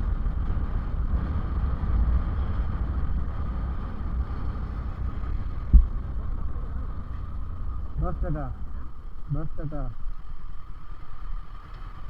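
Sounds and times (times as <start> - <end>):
wind rumbling on microphone: 0.0 - 9.3
motorcycle engine and road noise: 0.0 - 12.0.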